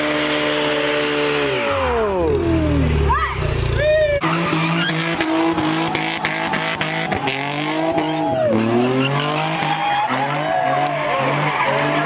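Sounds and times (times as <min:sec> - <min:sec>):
car engine revving hard: 0:00.0 - 0:03.1, 0:04.2 - 0:12.0
tyres squealing: 0:04.1 - 0:12.0.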